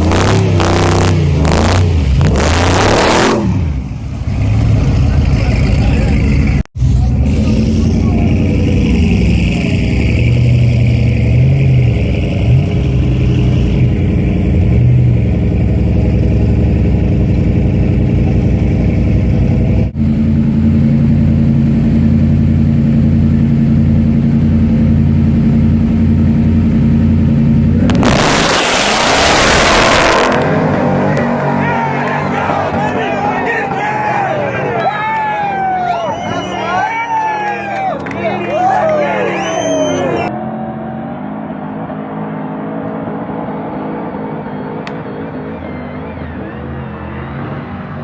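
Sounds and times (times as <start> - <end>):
truck engines idling: 3.5 - 48.0
loud rushing noise: 27.7 - 36.2.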